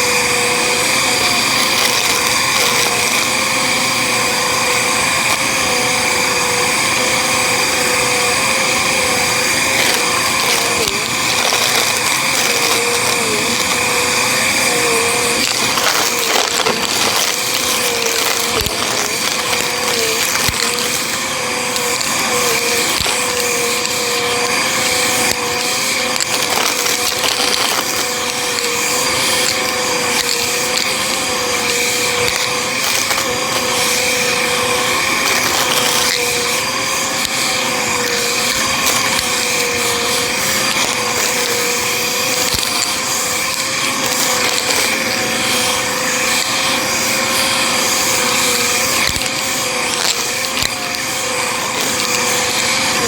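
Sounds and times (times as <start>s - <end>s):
vacuum cleaner motor whine: 0.0s - 53.0s
debris clicks and rattles: 9.6s - 14.0s, 15.3s - 34.4s, 35.1s - 36.4s, 38.0s - 46.5s.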